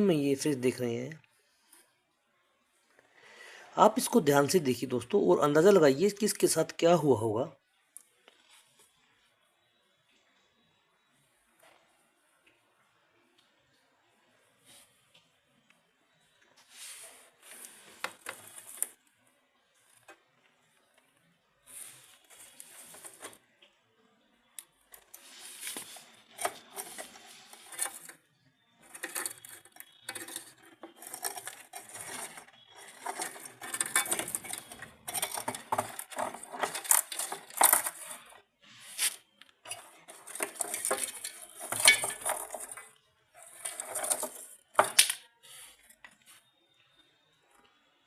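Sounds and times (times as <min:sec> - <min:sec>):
metallic clinking and rattling: 0:28.8 - 0:38.4, 0:39.7 - 0:45.2.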